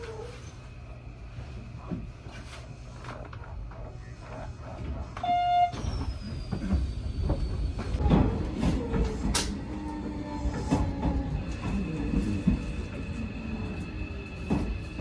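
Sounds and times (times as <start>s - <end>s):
train running gear rumble: 0.0s - 15.0s
train braking whine: 5.2s - 8.0s.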